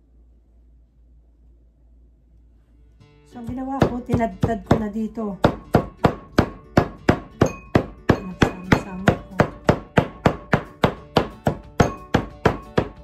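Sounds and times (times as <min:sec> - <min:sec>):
cleaver chopping on wooden board: 0:03.4 - 0:13.0.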